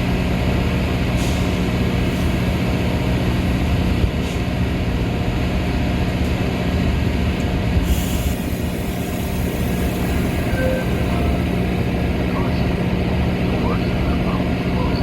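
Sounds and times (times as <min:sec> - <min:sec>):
train rumble with low hum: 0:00.0 - 0:15.0
hiss: 0:07.8 - 0:10.5.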